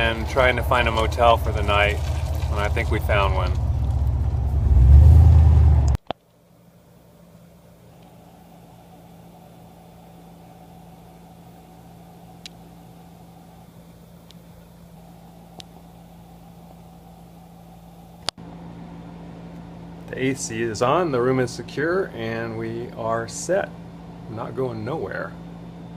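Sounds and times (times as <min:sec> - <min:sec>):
loud low vehicle rumble: 0:00.0 - 0:06.0
faint mechanical hum: 0:00.0 - 0:25.9.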